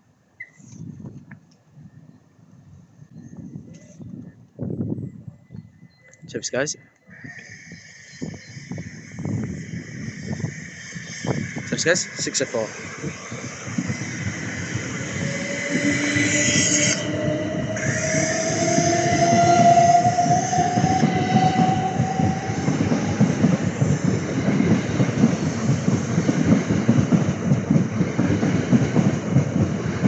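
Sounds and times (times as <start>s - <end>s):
electric train motor whine: 12.6s - 25.2s.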